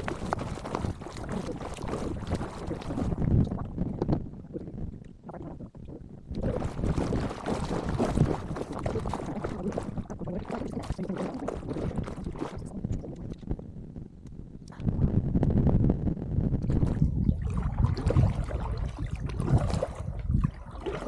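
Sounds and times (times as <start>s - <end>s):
paddle splashing water: 0.0s - 3.3s, 6.4s - 12.6s, 16.8s - 21.0s
wind rumbling on microphone: 0.0s - 21.0s.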